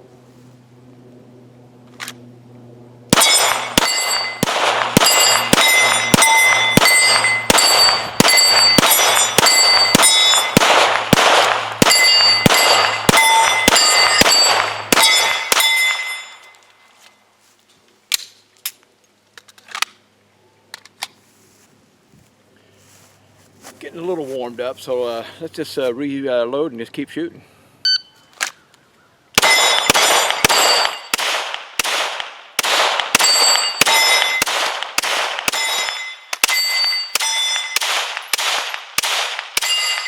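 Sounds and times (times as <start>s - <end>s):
pistol shots: 3.1s - 16.3s, 29.4s - 40.0s
ringing metallic clang: 3.2s - 10.6s, 11.8s - 16.8s, 29.4s - 31.2s, 33.2s - 34.5s, 35.5s - 37.9s, 39.6s - 40.0s.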